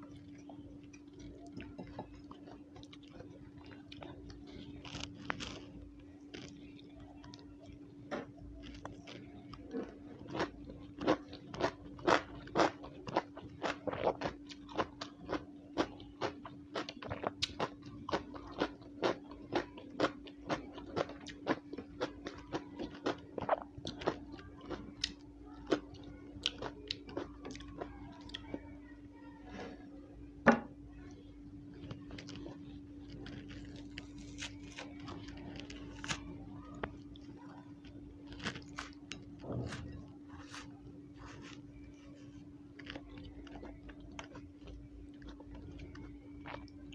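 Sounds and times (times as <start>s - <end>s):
crunching raw vegetable: 0.0s - 28.5s, 31.8s - 46.9s
steady low hum: 0.0s - 46.9s.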